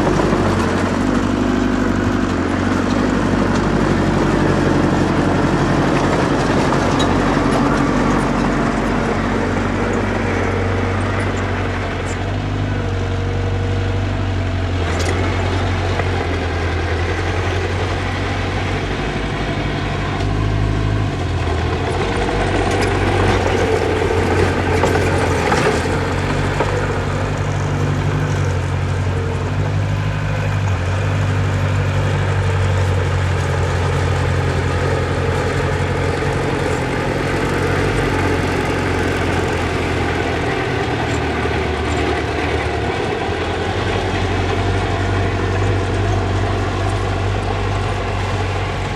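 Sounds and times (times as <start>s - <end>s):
heavy machinery engines running: 0.0s - 48.9s.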